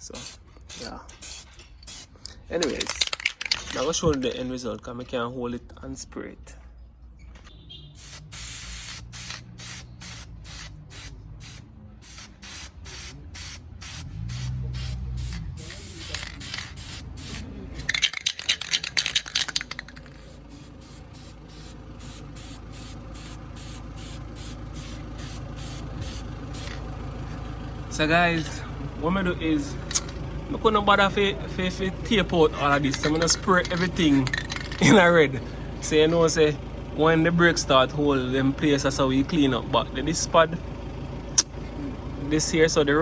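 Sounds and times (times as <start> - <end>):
spray paint can bursts: 0.0 - 3.6, 8.0 - 26.8, 32.6 - 34.8.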